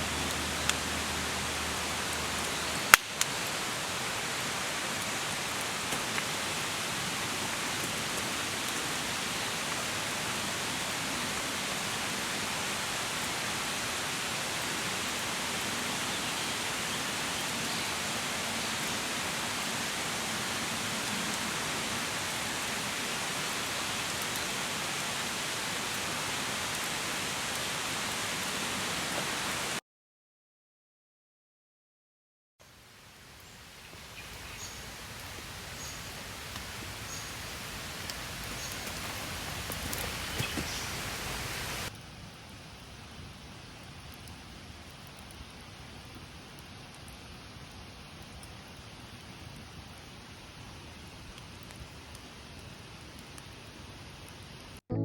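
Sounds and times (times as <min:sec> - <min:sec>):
steady rain hissing: 0:00.0 - 0:29.8, 0:32.6 - 0:54.8.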